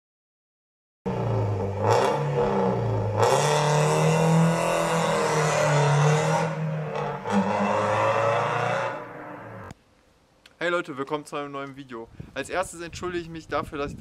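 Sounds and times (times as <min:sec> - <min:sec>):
car engine revving: 0:01.1 - 0:09.7.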